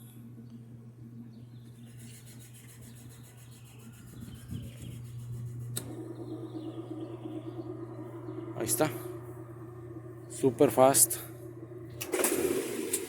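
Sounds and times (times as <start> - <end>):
washing machine motor hum: 0.0 - 13.0.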